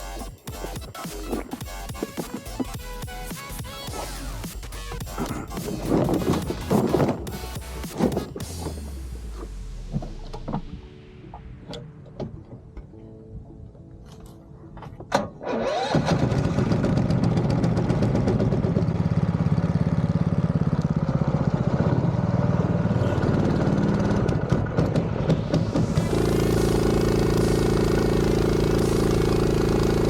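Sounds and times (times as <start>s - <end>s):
engine starting and idling: 15.1s - 30.0s.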